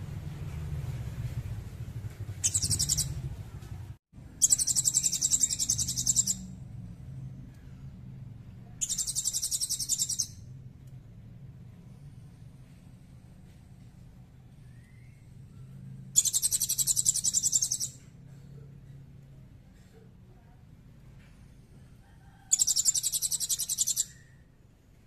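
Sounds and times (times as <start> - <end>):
songbird trilling: 2.4 - 3.2, 4.4 - 6.5, 8.8 - 10.4, 16.2 - 18.0, 22.5 - 24.4.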